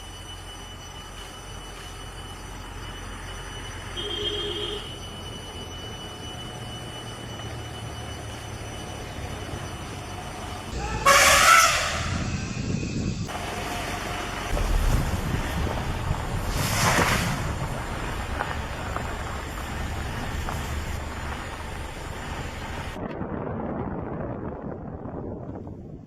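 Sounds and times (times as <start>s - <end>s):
wind buffeting microphone: 11.7s - 13.4s, 14.5s - 26.0s
low rumble: 14.3s - 26.0s.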